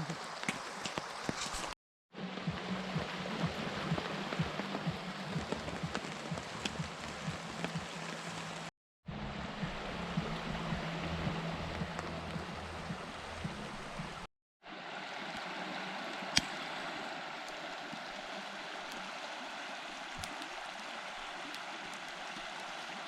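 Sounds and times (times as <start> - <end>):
river flowing: 0.0 - 23.0.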